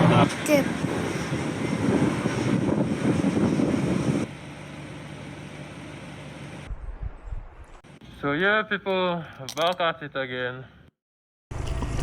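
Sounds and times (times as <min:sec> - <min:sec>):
wind rush on microphone: 0:00.7 - 0:04.3, 0:06.7 - 0:07.8.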